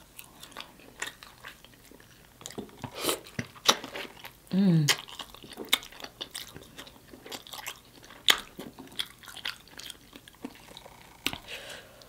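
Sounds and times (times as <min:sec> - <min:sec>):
close chewing with mouth clicks: 0:00.0 - 0:12.0.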